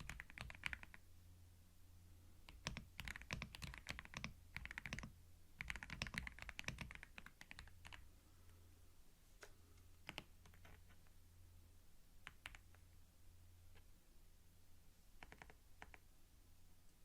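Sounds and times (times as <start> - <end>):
keyboard typing clicks: 0.0 - 1.0, 2.5 - 8.0, 10.0 - 11.1, 15.2 - 16.0.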